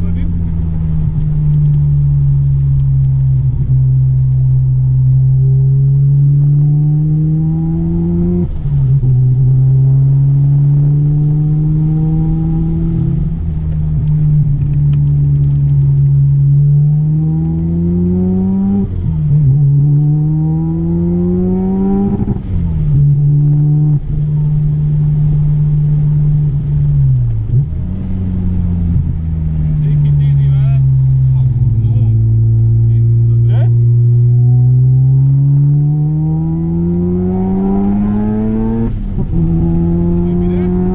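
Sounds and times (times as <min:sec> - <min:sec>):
rotary engine revving hard: 0:06.2 - 0:13.3, 0:16.8 - 0:24.7, 0:29.5 - 0:40.9.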